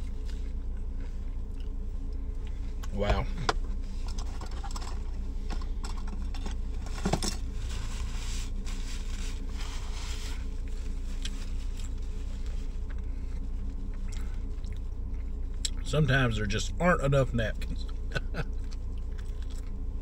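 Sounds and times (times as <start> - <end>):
steady low hum: 0.0 - 20.0
paper napkins rustling: 6.9 - 12.9.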